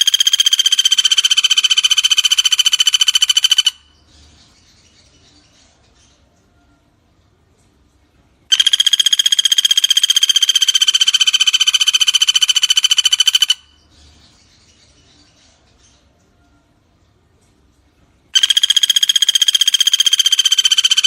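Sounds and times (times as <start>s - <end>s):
woodpecker rattling trill: 0.0s - 4.0s, 8.5s - 13.8s, 18.4s - 21.0s.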